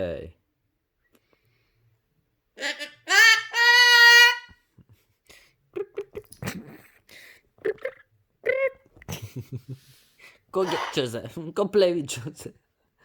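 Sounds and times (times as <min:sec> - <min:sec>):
cockatoo calling: 0:02.6 - 0:04.6, 0:10.6 - 0:11.1.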